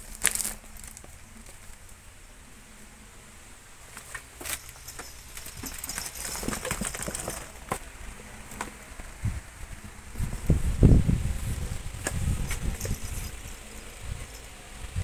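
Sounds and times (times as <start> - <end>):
cat scuffling with mouse: 3.8 - 7.9.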